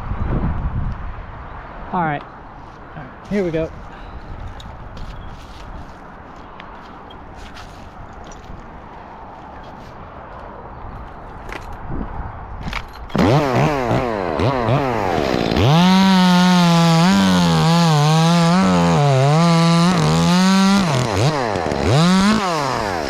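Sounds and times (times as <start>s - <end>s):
chainsaw revving and cutting: 13.1s - 23.0s.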